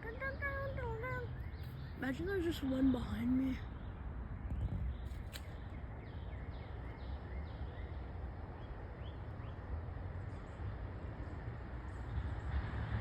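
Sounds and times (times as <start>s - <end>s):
wind on microphone: 4.3s - 5.6s.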